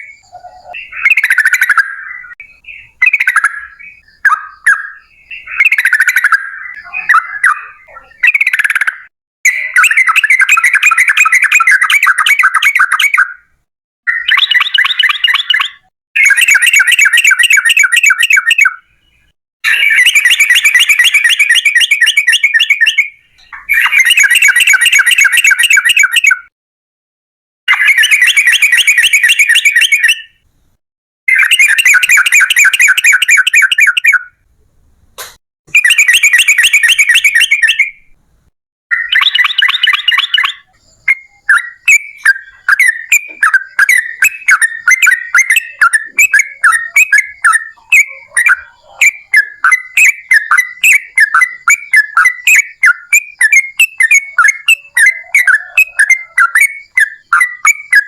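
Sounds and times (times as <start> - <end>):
bird chattering trills: 0.0 - 13.4, 14.1 - 26.5, 31.3 - 34.3, 35.7 - 38.0, 38.9 - 58.0
bird quick repeated chirps: 0.0 - 13.5, 14.1 - 26.5, 27.7 - 30.4, 31.3 - 34.3, 35.2 - 38.1, 38.9 - 58.0
brief click: 35.2 - 35.4.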